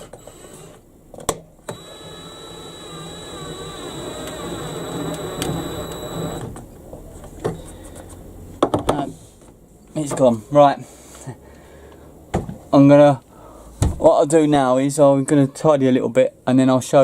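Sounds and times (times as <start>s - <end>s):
cordless drill driving screw: 1.7s - 6.6s
clicks: 3.9s - 6.7s.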